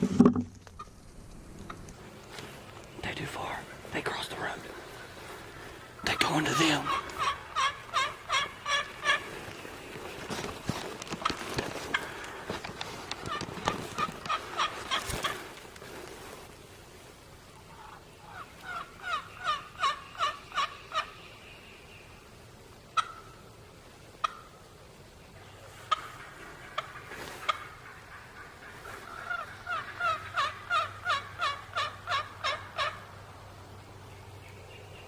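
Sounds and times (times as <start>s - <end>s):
sharp turkey notes: 2.9s - 15.6s
turkey yelping: 4.9s - 10.0s, 13.2s - 15.4s, 17.7s - 21.2s, 23.0s - 23.4s, 24.2s - 24.5s, 25.4s - 33.2s.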